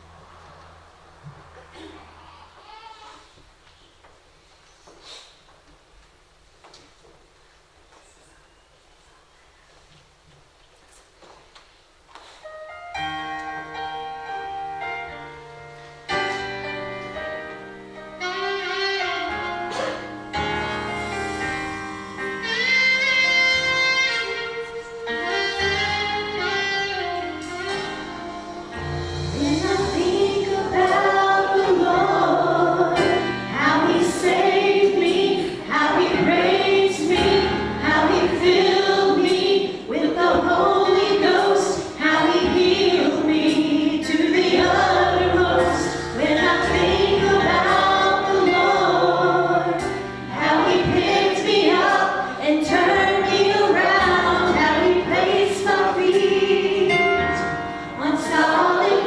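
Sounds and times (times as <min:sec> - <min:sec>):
sustained instrumental chords: 0:12.8 - 0:59.0
voices singing: 0:29.4 - 0:59.0.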